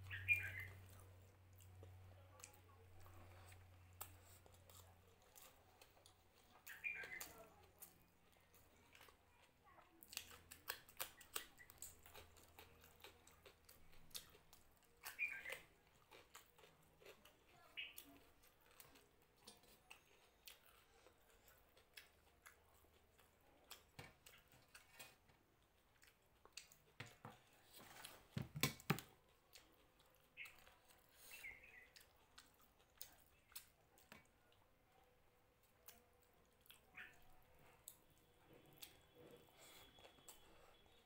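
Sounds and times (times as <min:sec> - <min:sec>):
person chewing food: 0:00.1 - 0:34.8, 0:35.5 - 0:41.0.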